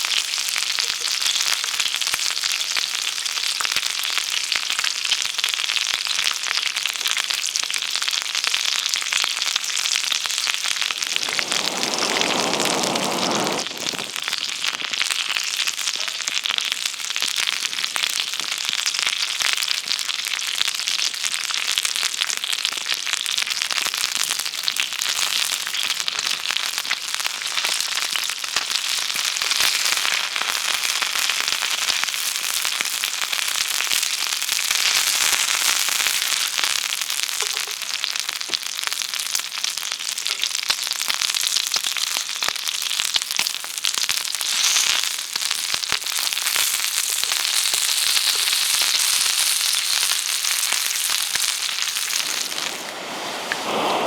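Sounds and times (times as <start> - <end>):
campfire crackling and sizzling: 0.0 - 54.0
low rushing noise: 11.0 - 14.2, 52.1 - 54.0.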